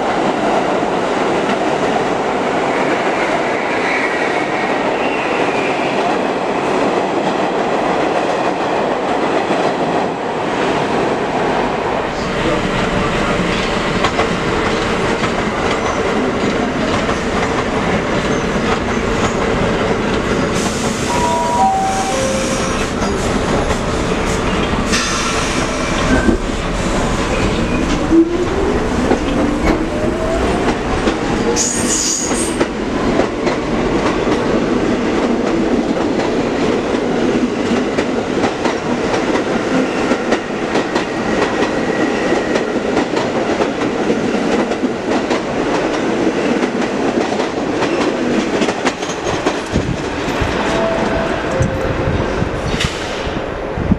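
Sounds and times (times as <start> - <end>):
train wheels rumbling on rails: 0.0 - 53.9
high wheel squeals: 21.1 - 23.2.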